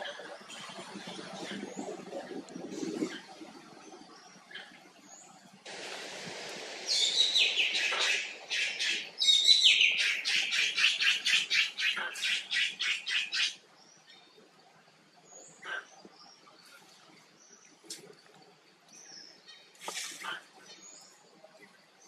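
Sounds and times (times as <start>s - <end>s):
short hiss: 5.7s - 8.9s, 19.8s - 20.4s
bird harsh repeated calls: 6.9s - 13.6s.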